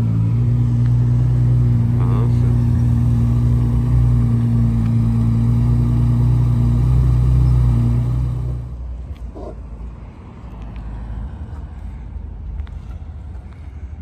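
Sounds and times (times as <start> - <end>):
car engine idling: 0.0 - 10.5.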